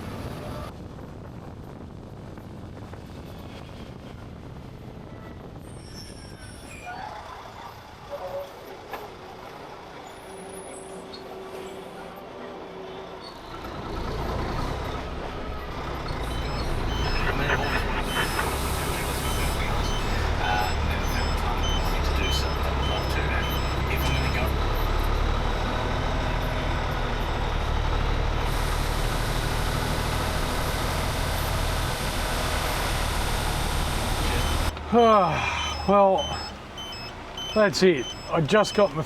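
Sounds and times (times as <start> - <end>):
truck diesel engine rumbling: 15.8 - 39.0
reversing alarm beeping: 16.2 - 24.6, 34.3 - 39.0.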